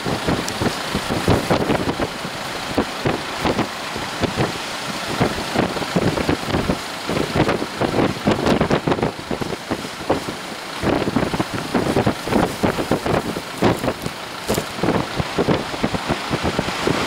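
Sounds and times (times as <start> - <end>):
low thumps from wind gusts: 0.0 - 17.0
wind buffeting microphone: 0.0 - 17.0.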